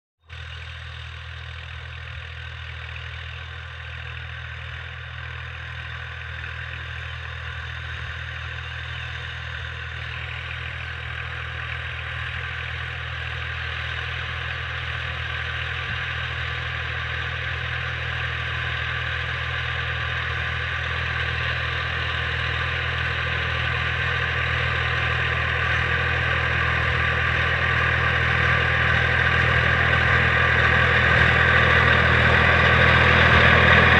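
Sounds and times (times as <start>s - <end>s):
tractor diesel engine running: 0.2s - 33.9s.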